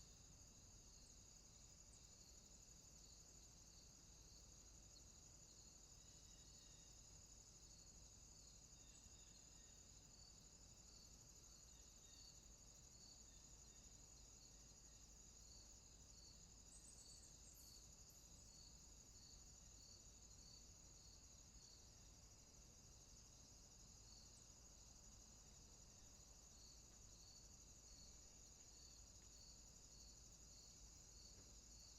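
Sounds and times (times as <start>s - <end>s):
cricket trill: 0.0s - 31.9s
insect chirp: 0.0s - 31.9s.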